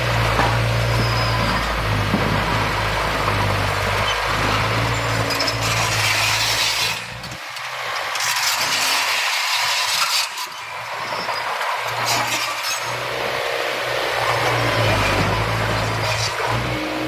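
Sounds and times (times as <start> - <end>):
diesel engine humming: 0.0 - 8.3, 10.6 - 17.0.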